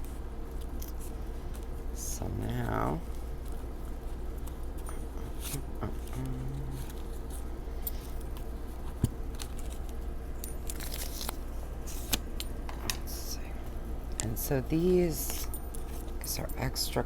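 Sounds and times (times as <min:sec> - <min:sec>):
steady low hum: 0:00.0 - 0:17.0
cardboard packaging rustling: 0:02.9 - 0:12.4.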